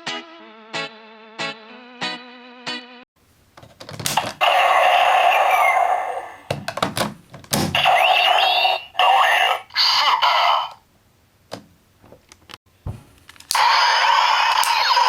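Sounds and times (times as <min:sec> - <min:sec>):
electronic toy sound effects: 0:04.4 - 0:06.5, 0:07.8 - 0:10.8, 0:13.6 - 0:15.0
toy plastic clicks: 0:14.5 - 0:15.0.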